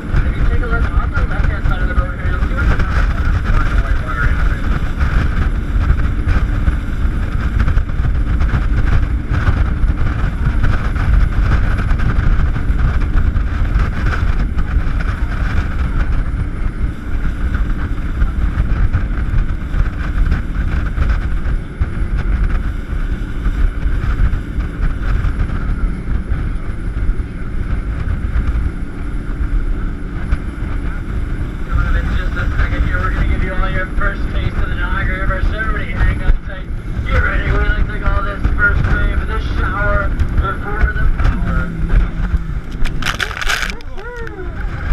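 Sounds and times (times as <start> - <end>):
boat engine running: 0.0 - 44.9
wind buffeting microphone: 0.0 - 44.9.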